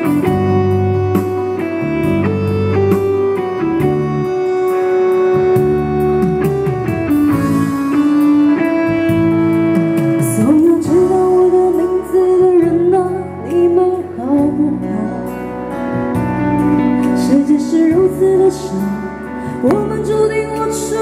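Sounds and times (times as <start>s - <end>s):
guitar line with bending notes: 0.0s - 21.0s
live band playing: 0.0s - 21.0s.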